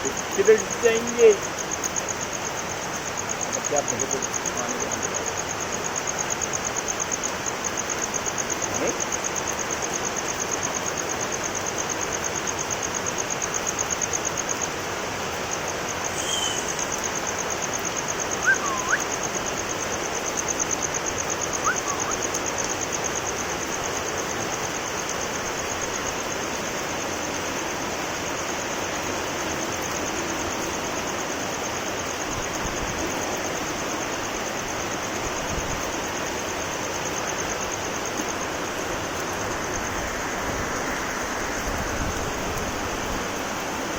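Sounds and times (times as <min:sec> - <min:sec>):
heavy rain falling: 0:00.0 - 0:43.9
short chirps: 0:16.1 - 0:16.9, 0:18.4 - 0:19.1.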